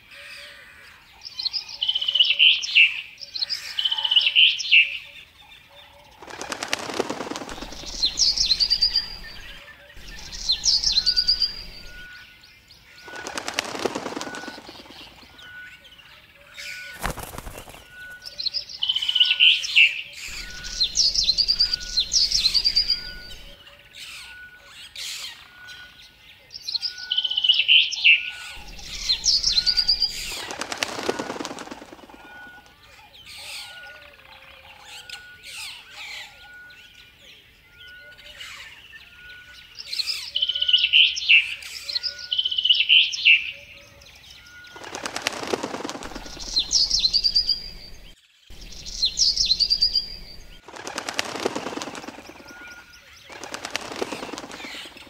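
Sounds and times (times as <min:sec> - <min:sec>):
songbirds chirping and trilling: 0:00.0 - 0:55.0
wing flaps whooshing: 0:06.2 - 0:12.1, 0:13.1 - 0:15.2, 0:17.0 - 0:18.0, 0:28.6 - 0:32.4, 0:44.8 - 0:48.1, 0:48.7 - 0:52.6, 0:53.3 - 0:55.0.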